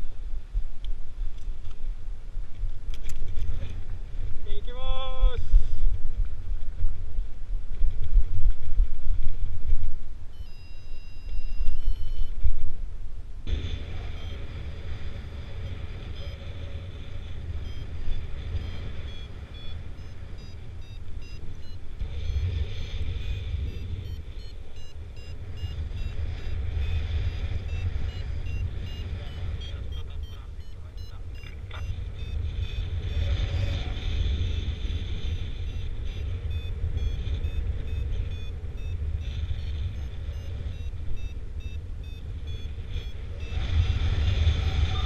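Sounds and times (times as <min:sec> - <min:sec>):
wind buffeting microphone: 0:00.0 - 0:45.0
variometer beeping: 0:10.3 - 0:12.7, 0:13.5 - 0:45.0.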